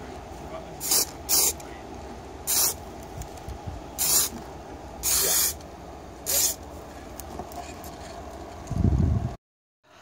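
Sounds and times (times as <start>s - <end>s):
hissing spray bursts: 0.8s - 1.6s, 2.4s - 2.8s, 4.0s - 4.4s, 5.0s - 5.6s, 6.2s - 6.6s.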